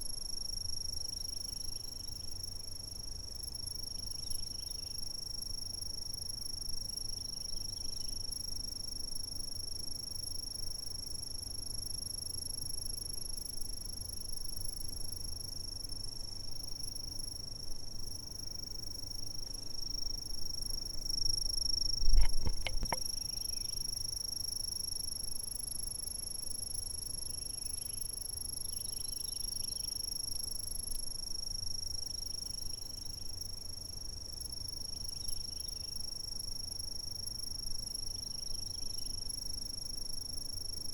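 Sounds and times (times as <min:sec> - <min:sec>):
faint insect chirps: 0:00.0 - 0:40.9
insects trilling: 0:18.1 - 0:30.7, 0:31.9 - 0:40.9
low thump with clicks: 0:22.0 - 0:23.1.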